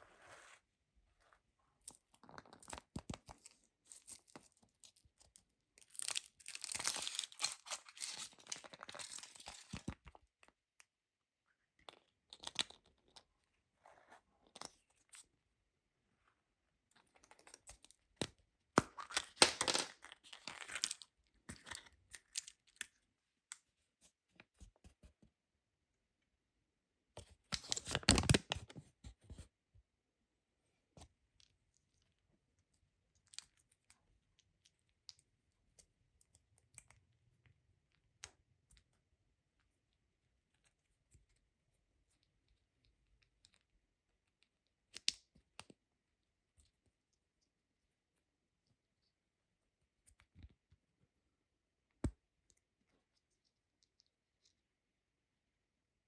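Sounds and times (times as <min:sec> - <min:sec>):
crackly tearing and scraping: 0:05.9 - 0:10.0.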